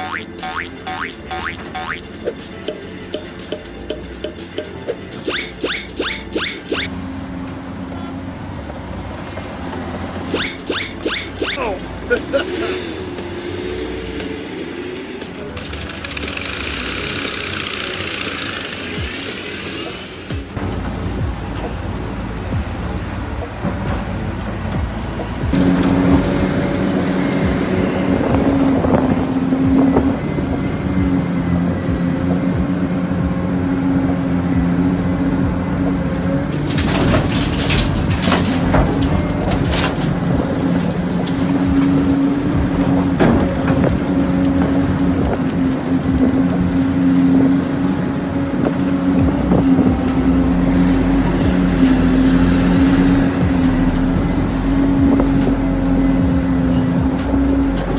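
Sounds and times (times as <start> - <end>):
toy vehicle engine drone: 10.1 - 21.2
sharp knocks and clatter: 36.5 - 45.5.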